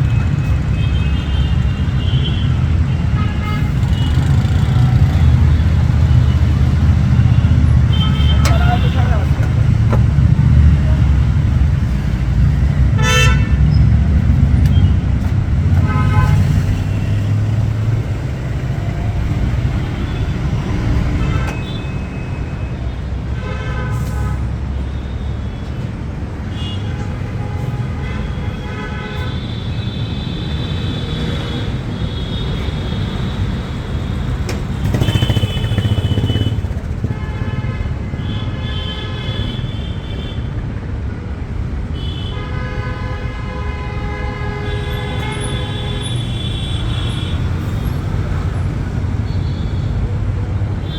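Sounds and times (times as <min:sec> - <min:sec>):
vehicle horns honking: 0:00.0 - 0:09.8, 0:12.9 - 0:13.9, 0:15.7 - 0:17.4, 0:19.8 - 0:25.8, 0:26.5 - 0:40.6, 0:42.0 - 0:48.0
road traffic passing: 0:00.0 - 0:50.9.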